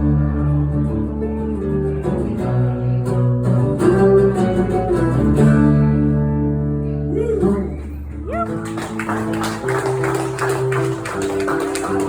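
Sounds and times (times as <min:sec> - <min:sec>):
low bass line: 0:00.0 - 0:08.6
acoustic guitar strumming: 0:00.0 - 0:12.0.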